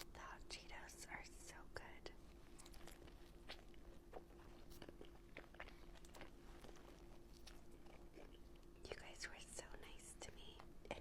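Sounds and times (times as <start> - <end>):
chewing and biting: 2.5 - 8.8.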